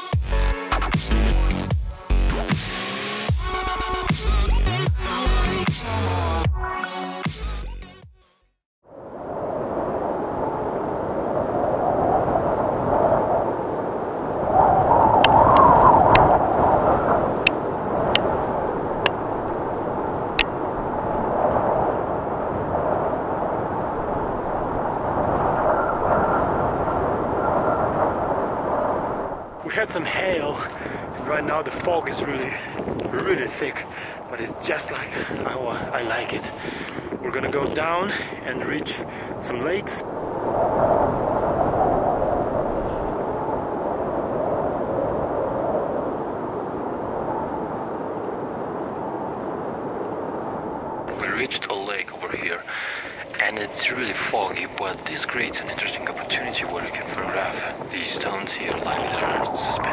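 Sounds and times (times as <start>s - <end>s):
wind blowing on microphone: 8.9s - 59.9s.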